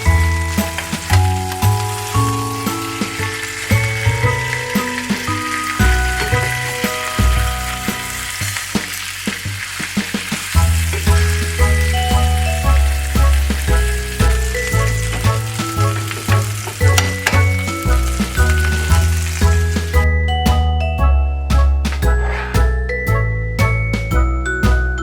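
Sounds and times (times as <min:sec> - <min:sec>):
background music with bass: 0:00.0 - 0:09.1, 0:10.6 - 0:25.0
food sizzling in a pan: 0:00.0 - 0:11.6.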